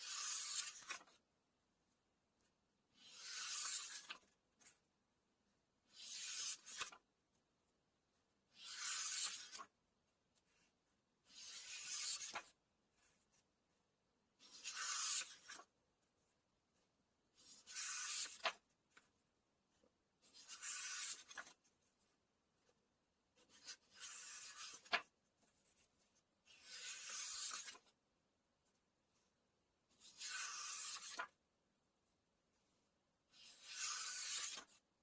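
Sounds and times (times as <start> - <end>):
book pages turning: 0.0 - 1.2, 3.0 - 4.8, 5.9 - 7.0, 8.6 - 9.7, 11.3 - 13.4, 14.4 - 15.7, 17.4 - 19.1, 20.2 - 22.8, 23.4 - 27.9, 30.0 - 31.4, 33.4 - 34.8.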